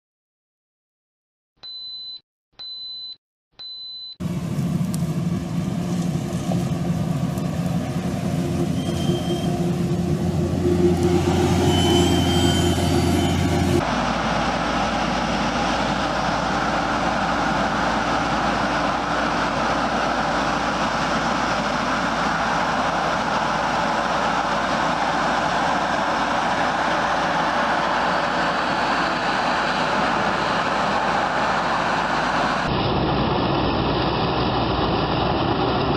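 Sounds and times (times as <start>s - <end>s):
short high beeps: 1.6s - 4.2s, 8.7s - 9.8s
heavy farm machinery running: 4.2s - 35.9s
machine rumble: 4.2s - 35.9s.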